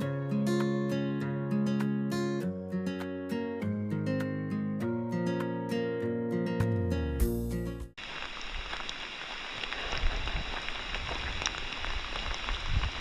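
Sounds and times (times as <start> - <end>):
strummed acoustic guitar: 0.0 - 7.9
steady rain: 8.0 - 13.0.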